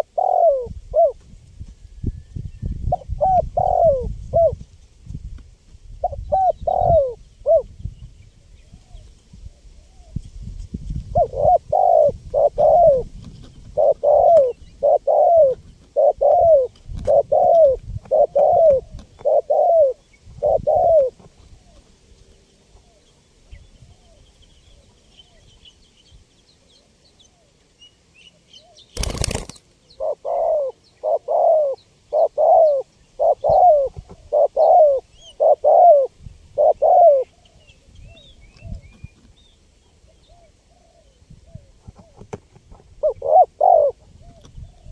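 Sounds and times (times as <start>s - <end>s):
dove cooing: 0.0s - 1.2s, 2.8s - 4.6s, 6.0s - 7.7s, 11.0s - 21.9s, 28.6s - 39.0s, 40.0s - 44.9s
small birds chirping: 6.0s - 44.9s.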